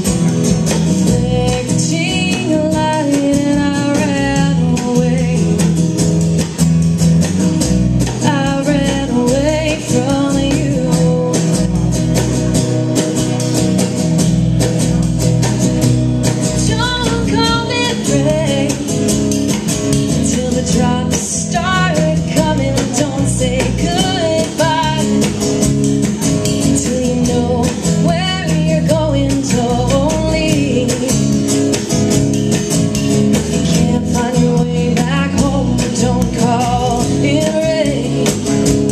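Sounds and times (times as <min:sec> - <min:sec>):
live band guitar: 0:00.0 - 0:38.9
person singing: 0:08.2 - 0:12.0, 0:20.1 - 0:25.3, 0:33.6 - 0:38.9.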